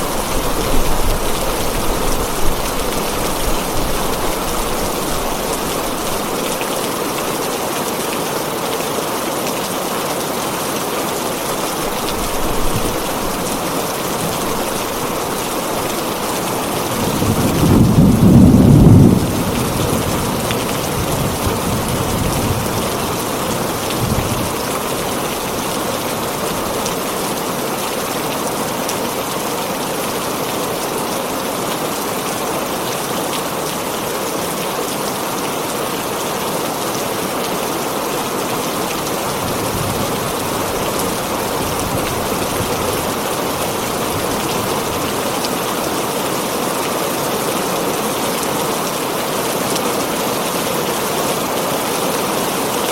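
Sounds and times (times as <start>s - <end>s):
heavy rain on a tin roof: 0.0s - 52.9s
thunder rumbling: 14.2s - 24.7s.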